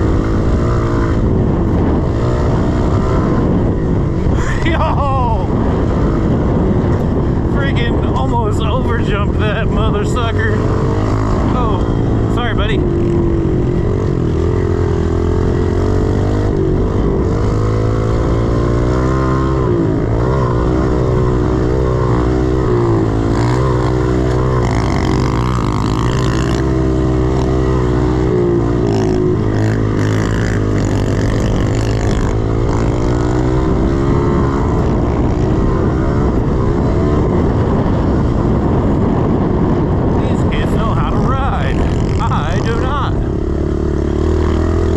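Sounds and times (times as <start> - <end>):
motorbike engine revving: 0.0 - 44.9.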